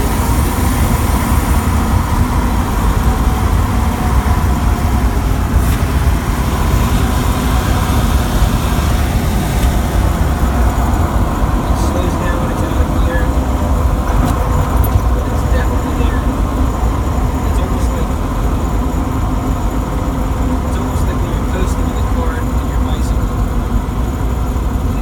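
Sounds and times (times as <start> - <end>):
light drivetrain tick: 0.0 - 18.9
road and drivetrain rumble: 0.0 - 25.0.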